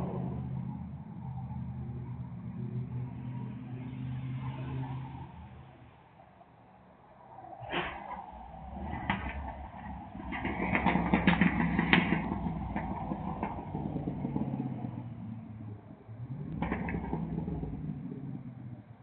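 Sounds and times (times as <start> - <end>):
exhaust crackles: 7.6 - 19.0
pickup truck engine revving: 7.6 - 19.0.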